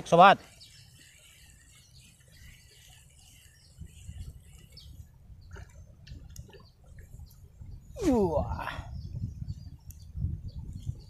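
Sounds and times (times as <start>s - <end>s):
small birds chirping: 0.0s - 11.0s
faint clicks: 9.8s - 10.1s.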